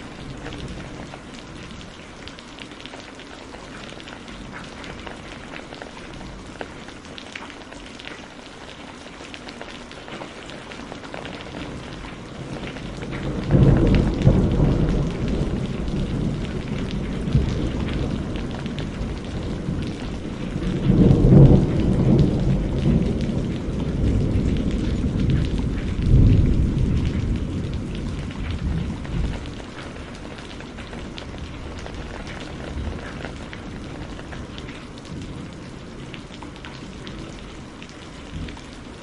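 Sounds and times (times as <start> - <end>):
steady rain: 0.0 - 39.0
thunder rumble: 11.4 - 37.5.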